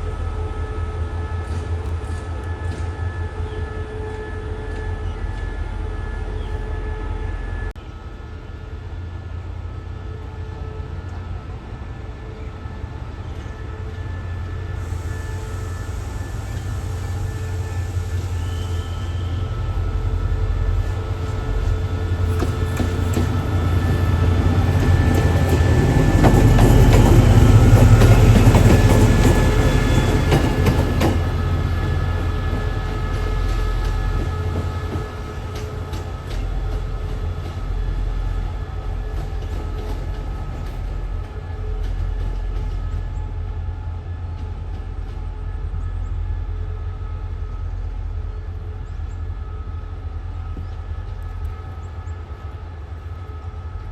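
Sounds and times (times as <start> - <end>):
train engine hum: 0.0 - 53.9
train wheels clicking over rail joints: 21.6 - 36.8.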